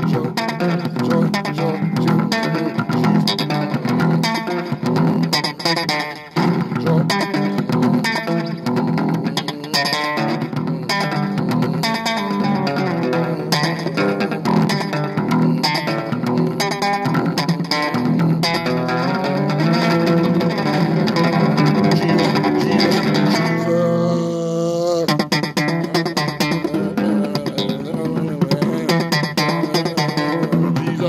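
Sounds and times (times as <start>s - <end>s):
electric bass guitar thumping: 0.0s - 24.4s, 25.0s - 31.0s
gospel music: 18.8s - 31.0s.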